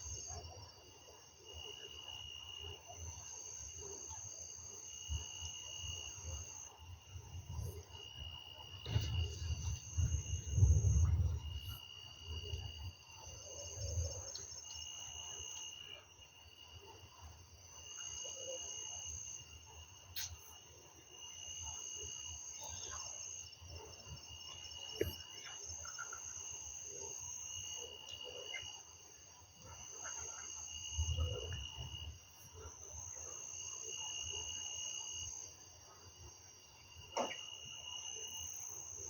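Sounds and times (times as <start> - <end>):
brief low rumble: 8.9 - 11.8.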